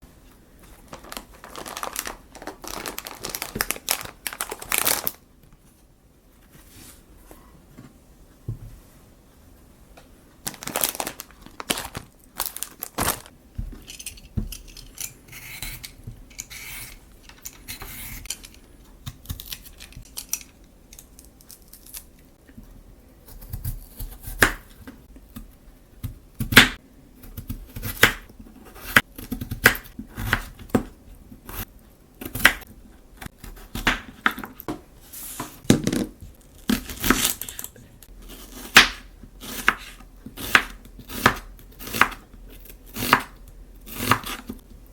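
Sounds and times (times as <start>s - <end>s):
packaging crinkling and tearing: 0.6s - 5.2s, 10.4s - 13.4s.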